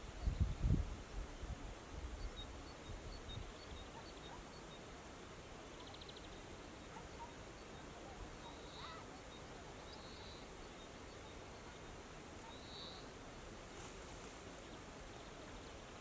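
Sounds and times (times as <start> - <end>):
steady outdoor hiss: 0.0 - 16.0
distant songbird calls: 2.2 - 5.0, 5.6 - 13.2.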